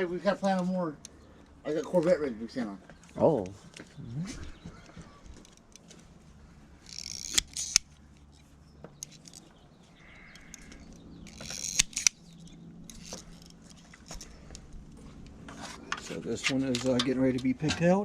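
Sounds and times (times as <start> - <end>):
rasping wire strip pull: 6.8 - 7.9, 10.2 - 13.6
wire cutters snipping: 6.8 - 9.5, 10.2 - 17.9.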